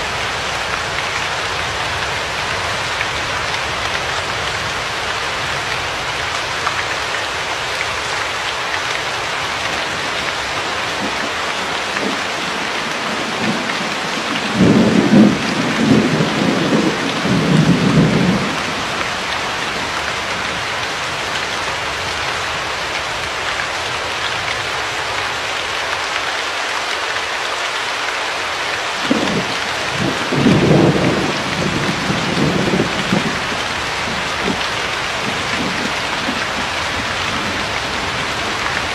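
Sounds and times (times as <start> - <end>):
steady rain falling: 0.0 - 38.9
low rolls of thunder: 9.8 - 20.5, 29.0 - 38.9.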